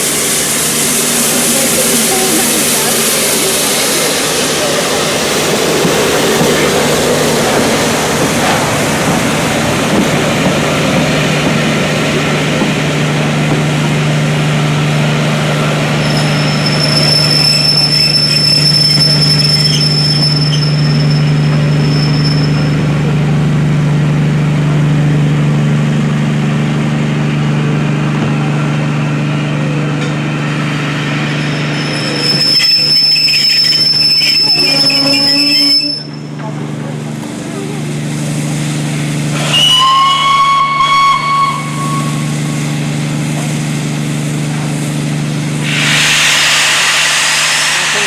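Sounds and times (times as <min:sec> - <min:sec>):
train low drone: 0:00.0 - 0:48.0
high-pitched wheel squeal: 0:16.0 - 0:22.8, 0:31.4 - 0:36.3, 0:39.5 - 0:42.3.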